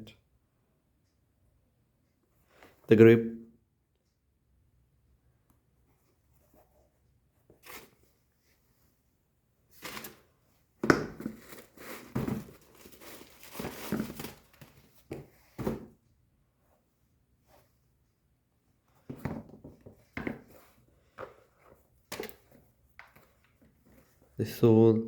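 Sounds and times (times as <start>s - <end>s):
packing material crinkling: 11.3s - 14.9s.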